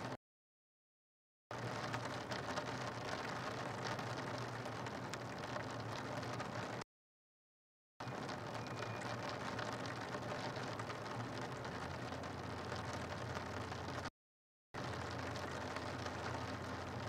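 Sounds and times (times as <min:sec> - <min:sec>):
faint raindrop ticks: 0:01.5 - 0:06.8, 0:08.0 - 0:14.1, 0:14.8 - 0:17.0
rain on a rooftop: 0:01.5 - 0:06.8, 0:08.0 - 0:14.1, 0:14.8 - 0:17.0.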